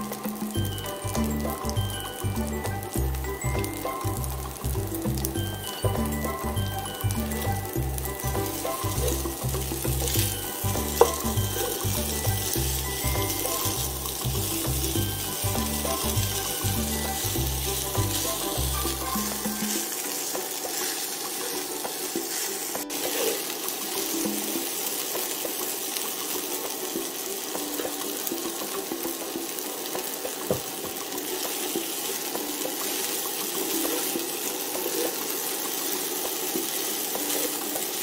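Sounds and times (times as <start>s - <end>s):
wooden spatula stirring: 0.0s - 26.1s
food sizzling in a frying pan: 0.0s - 38.0s.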